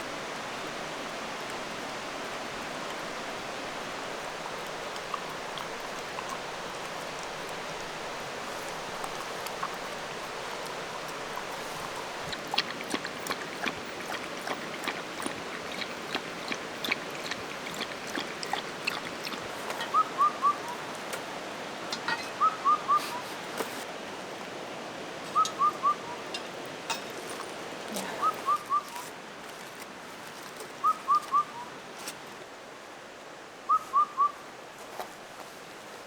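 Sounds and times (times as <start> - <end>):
bird whistling call: 19.8 - 20.8, 22.4 - 23.2, 25.3 - 26.3, 28.0 - 29.0, 30.8 - 31.7, 33.7 - 34.4.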